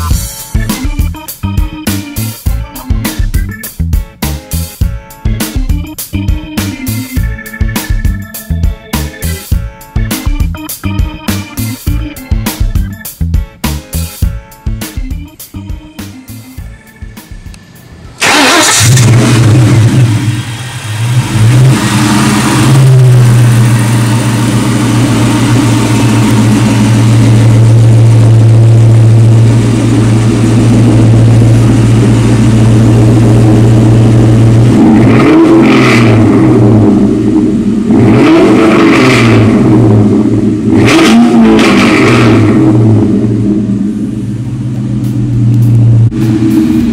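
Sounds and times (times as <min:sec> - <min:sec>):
car engine idling: 0:00.0 - 0:46.9
car engine starting: 0:00.0 - 0:46.9
car engine revving: 0:16.2 - 0:46.9.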